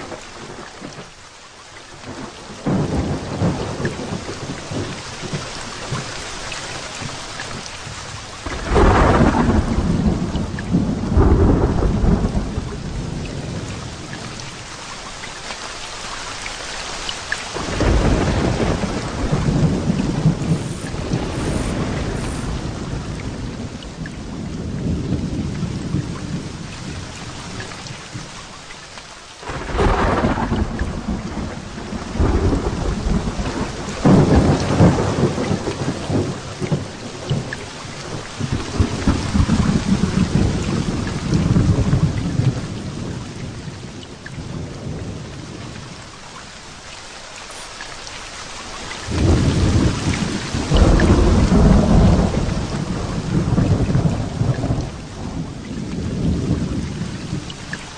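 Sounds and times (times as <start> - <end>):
heavy rain falling: 0.0 - 57.9
rolling thunder: 2.1 - 14.6, 17.6 - 28.3, 29.4 - 45.9, 49.0 - 57.6.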